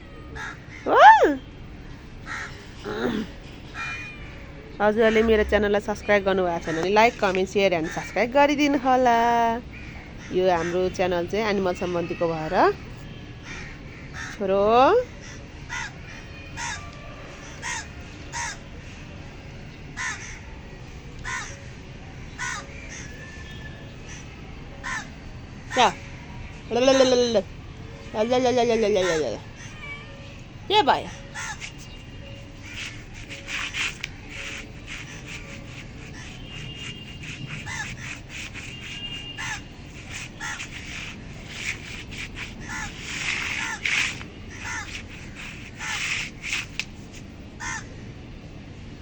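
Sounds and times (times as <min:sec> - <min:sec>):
crow cawing: 0:00.4 - 0:00.9, 0:02.3 - 0:03.1, 0:20.0 - 0:20.4, 0:24.8 - 0:25.1, 0:31.4 - 0:31.7, 0:36.2 - 0:41.0, 0:42.6 - 0:46.2, 0:47.6 - 0:47.9
rustling: 0:31.4 - 0:47.3.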